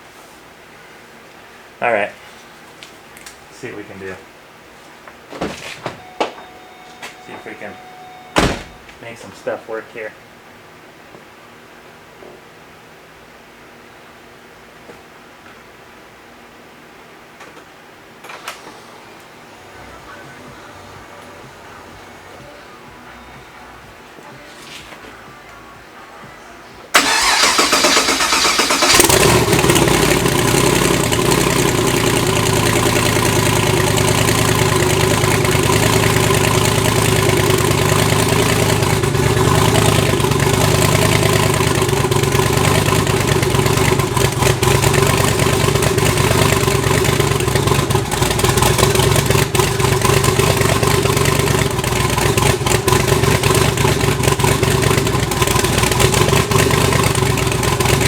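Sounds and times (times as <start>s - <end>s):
car engine idling: 26.9s - 58.0s
engine cranking: 27.0s - 32.8s.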